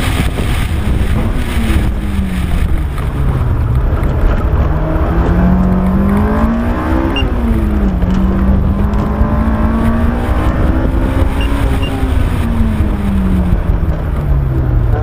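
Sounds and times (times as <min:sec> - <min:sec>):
high-revving car engine: 0:00.0 - 0:15.0
wind and road noise: 0:00.0 - 0:15.0.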